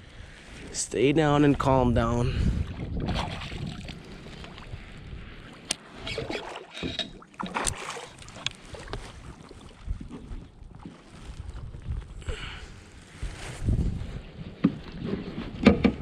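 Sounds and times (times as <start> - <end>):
water splashing: 2.5 - 12.0.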